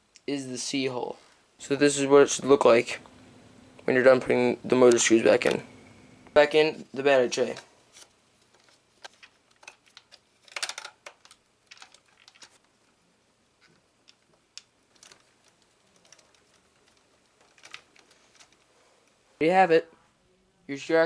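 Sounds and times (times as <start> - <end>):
plastic parts and screws rattling: 7.4 - 12.8, 13.6 - 19.2.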